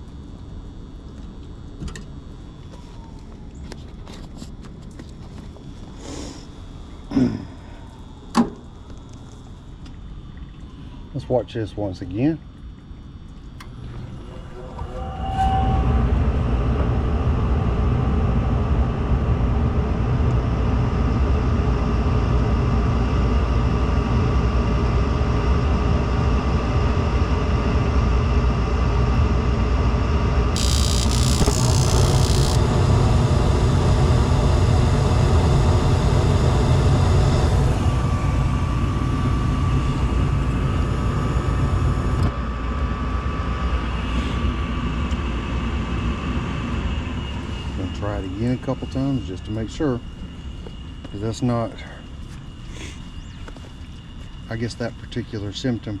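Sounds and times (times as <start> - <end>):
gas furnace rumbling: 13.2 - 53.4.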